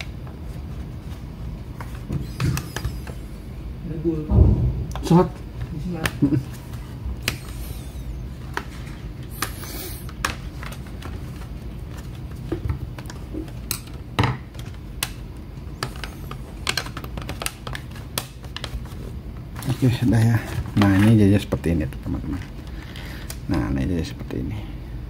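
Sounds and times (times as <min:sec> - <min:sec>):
low steady hum: 0:00.0 - 0:25.0
plastic laptop parts clicking: 0:15.8 - 0:18.7.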